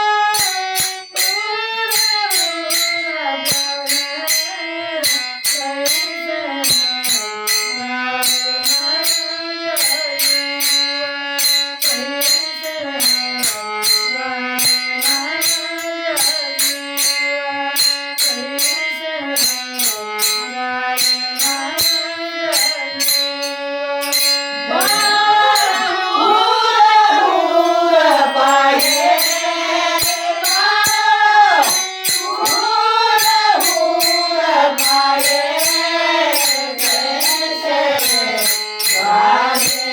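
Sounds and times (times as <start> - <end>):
woman singing: 0.0 - 7.2, 7.9 - 11.2, 11.8 - 20.6, 21.4 - 23.4, 24.6 - 39.9
jingling percussion beat: 0.0 - 39.9
instrumental folk melody: 17.4 - 39.9.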